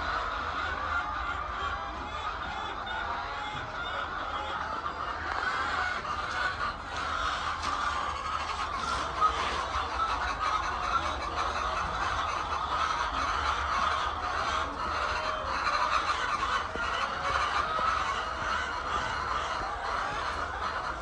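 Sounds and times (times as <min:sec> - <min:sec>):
hens calling: 0:00.0 - 0:21.0.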